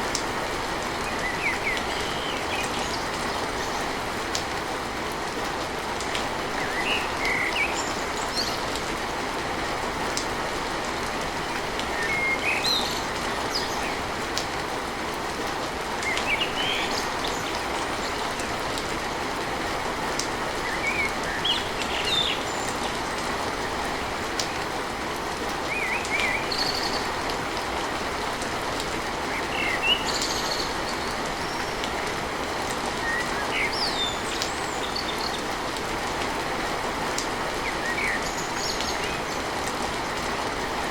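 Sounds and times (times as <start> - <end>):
heavy rain on a tin roof: 0.0 - 40.9
birds chirping: 32.9 - 35.6.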